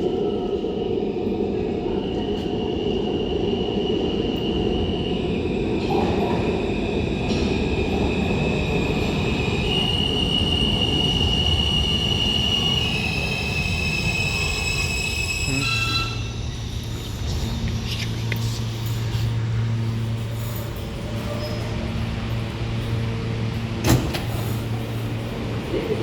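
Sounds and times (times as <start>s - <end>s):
subway train rumbling on rails: 0.0s - 26.0s
high-pitched wheel squealing: 11.8s - 16.8s.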